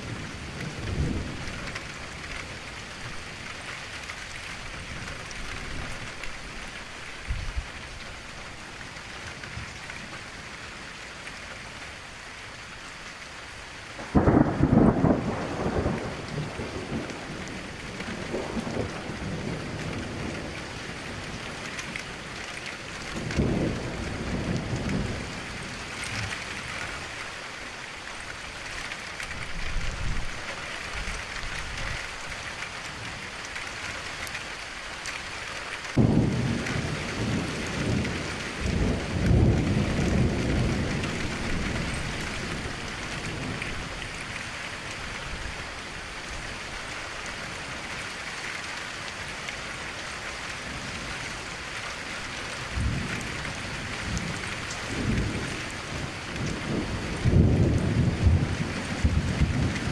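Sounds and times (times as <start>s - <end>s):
rain pattering on window: 0.0s - 59.9s
thunder rolling: 14.0s - 17.3s, 36.0s - 43.7s, 56.4s - 59.9s.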